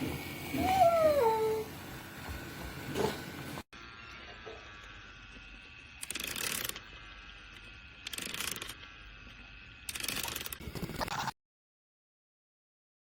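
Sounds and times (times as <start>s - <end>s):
toy train motor whining: 4.1s - 11.0s.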